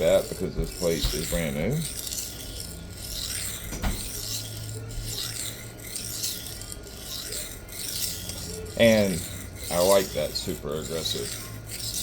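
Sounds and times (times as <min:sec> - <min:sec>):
knife scraping on sharpening plate: 0:00.0 - 0:12.0.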